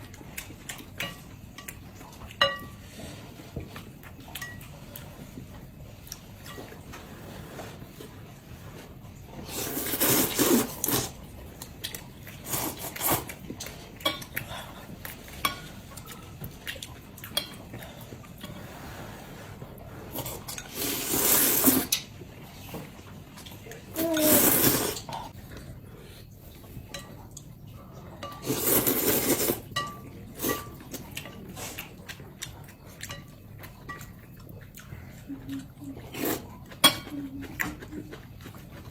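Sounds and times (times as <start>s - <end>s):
noodle slurping: 9.4s - 11.2s, 18.5s - 22.0s, 24.0s - 25.3s, 28.5s - 29.7s.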